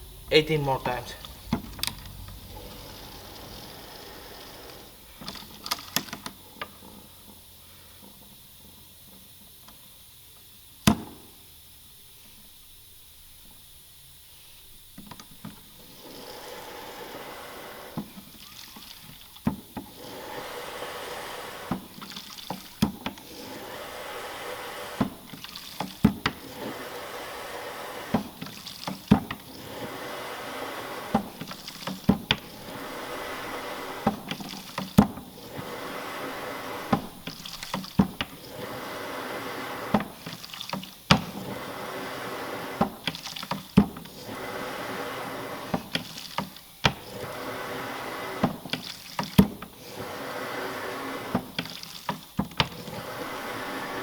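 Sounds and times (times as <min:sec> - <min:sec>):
hand pump wet squirting: 0:01.2 - 0:07.0, 0:15.2 - 0:54.0
pump stroke clicks: 0:01.2 - 0:07.4, 0:17.9 - 0:41.7.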